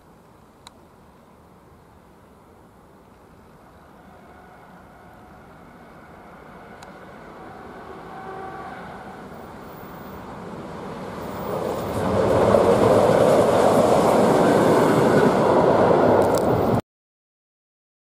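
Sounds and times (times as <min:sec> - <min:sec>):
train passing on next track: 0:02.6 - 0:16.8
train running noise inside carriage: 0:03.1 - 0:16.8.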